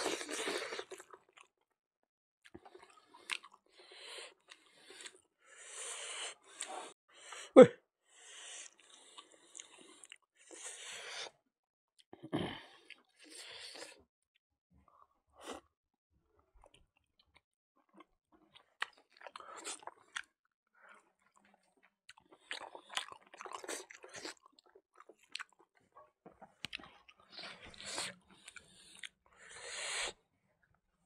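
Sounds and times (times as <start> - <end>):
person chewing food: 2.4 - 5.2, 8.7 - 10.6, 17.9 - 29.6.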